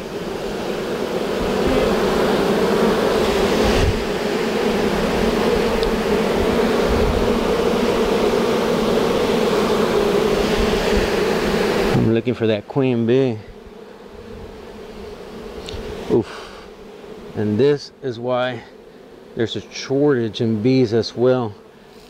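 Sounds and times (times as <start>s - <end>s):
bees buzzing loudly: 0.0s - 22.0s.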